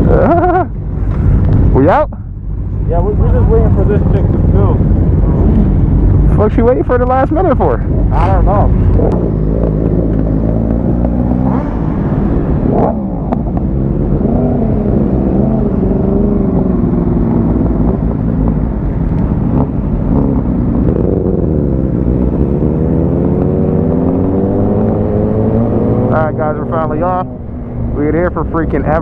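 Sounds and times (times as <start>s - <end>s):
motorcycle engines idling: 26.1s - 29.0s.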